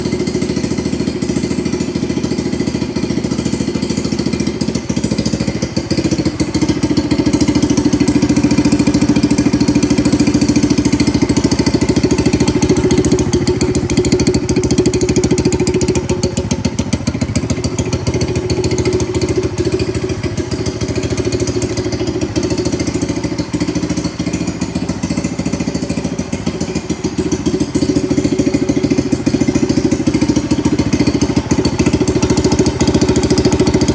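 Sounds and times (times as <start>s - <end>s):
small motorcycle engine idling: 0.0s - 33.9s.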